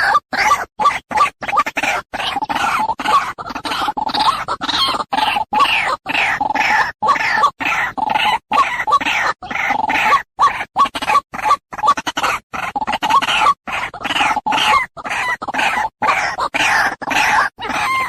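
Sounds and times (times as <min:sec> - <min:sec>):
waterhen calling: 0:16.1 - 0:18.0.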